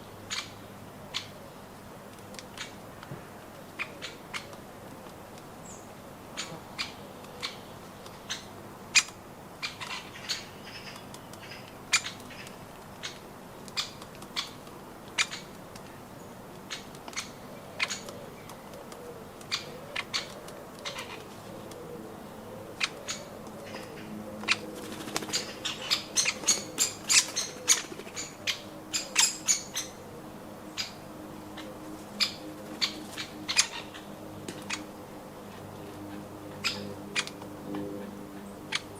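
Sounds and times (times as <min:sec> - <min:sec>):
woodpeckers tapping on nuts: 0:06.4 - 0:21.8.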